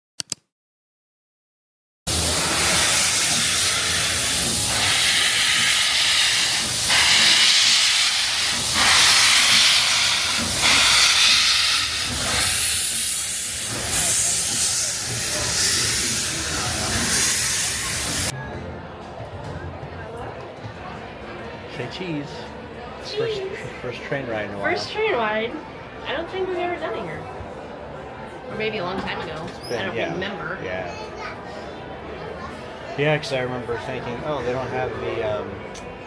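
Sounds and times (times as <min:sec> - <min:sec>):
steam locomotive hissing: 0:02.1 - 0:18.3.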